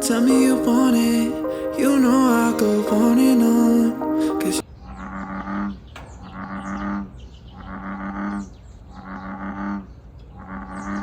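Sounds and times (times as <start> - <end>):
small birds chirping: 4.6 - 11.0
deep animal call: 4.8 - 11.0.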